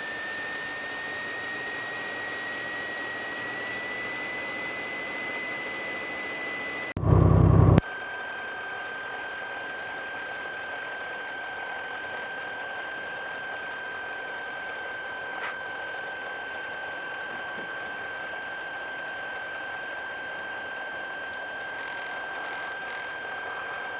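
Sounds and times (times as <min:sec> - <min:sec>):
high whine: 0:00.0 - 0:07.8
light aircraft engine and cabin: 0:00.0 - 0:23.9
loud low-pitched burst: 0:07.0 - 0:07.8.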